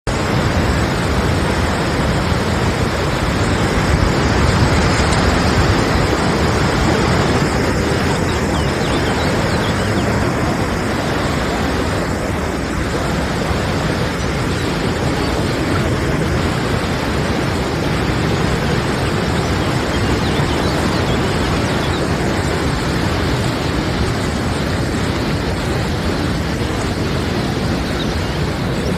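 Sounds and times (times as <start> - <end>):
river water rushing: 0.1 - 28.9.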